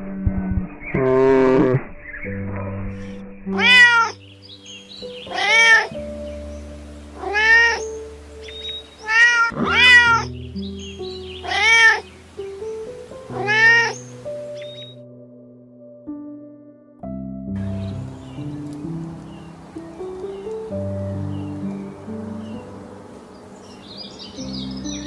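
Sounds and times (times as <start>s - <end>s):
soft background music: 0.0s - 25.0s
animal meow-like calls: 3.6s - 4.2s, 5.2s - 6.0s, 7.2s - 8.0s, 9.0s - 10.3s, 11.4s - 12.1s, 13.3s - 14.0s.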